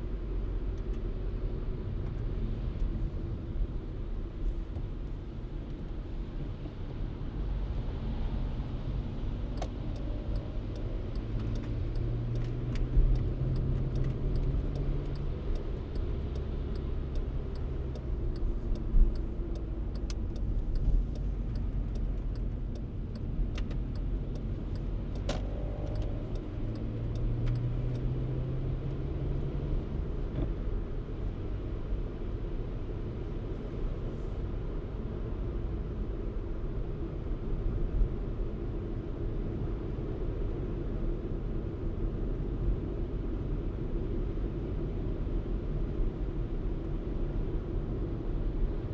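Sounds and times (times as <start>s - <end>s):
car engine and road noise: 0.0s - 48.9s.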